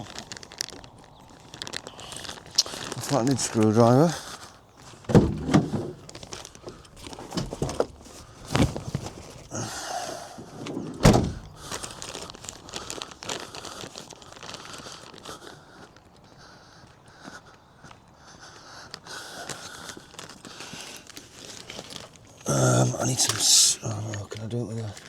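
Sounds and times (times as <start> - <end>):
rustling and rummaging: 0.0 - 15.2
sharp knocks and thumps: 5.1 - 6.2, 7.0 - 9.5.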